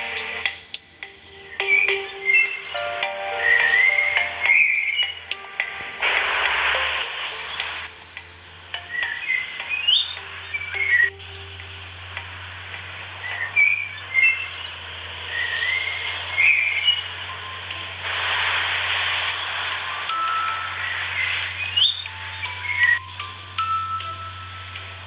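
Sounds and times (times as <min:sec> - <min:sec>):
steady high hiss: 0:00.0 - 0:25.0
high bird-like chirps: 0:01.4 - 0:05.4, 0:08.8 - 0:11.3, 0:13.2 - 0:17.4, 0:18.4 - 0:23.2.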